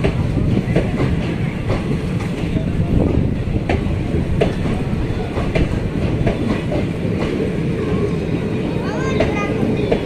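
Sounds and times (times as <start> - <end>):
wheels clicking over rail joints: 0.0 - 7.5
train rumble: 0.0 - 10.0.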